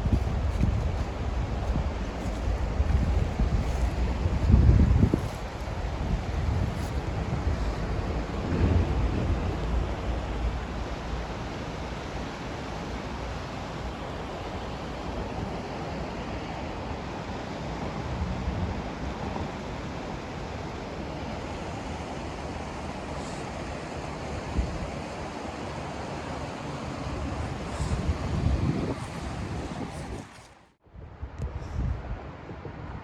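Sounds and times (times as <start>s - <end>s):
low rumbles: 0.0s - 13.3s
pink noise hiss: 0.0s - 30.5s.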